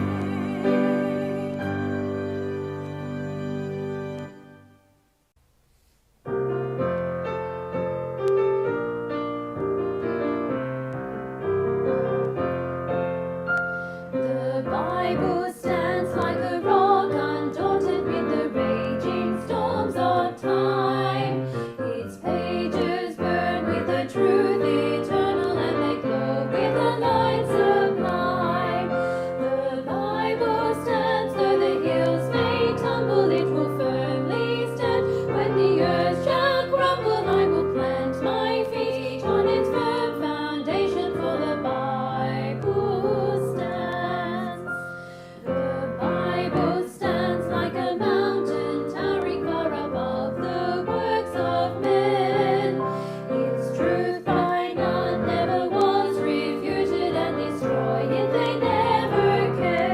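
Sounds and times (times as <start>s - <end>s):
person singing: 0.0s - 2.5s
piano music: 0.0s - 5.2s, 6.3s - 59.9s.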